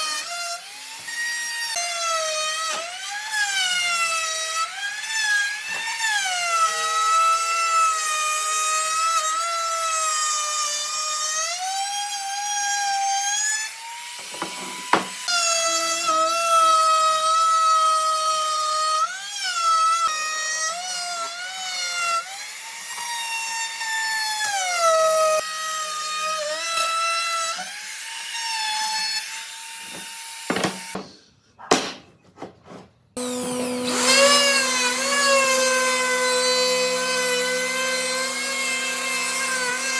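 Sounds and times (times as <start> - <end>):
steady tool whine: 14.2 - 15.3, 33.2 - 39.9
power tool motor whining: 14.2 - 16.1, 33.2 - 39.9.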